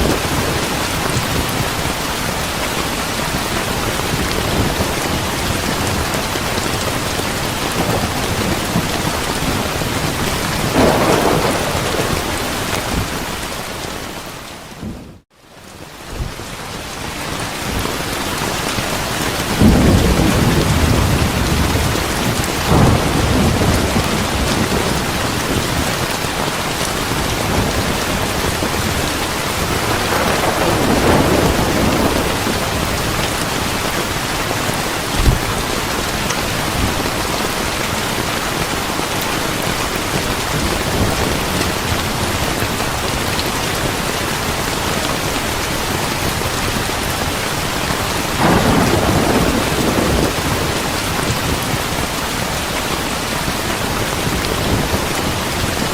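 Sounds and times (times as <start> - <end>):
heavy rainfall: 0.0 - 55.9
rolling thunder: 3.7 - 14.1, 19.3 - 38.3, 48.2 - 52.0
sharp thunder crack: 10.7 - 13.4, 29.8 - 33.0, 48.4 - 50.8.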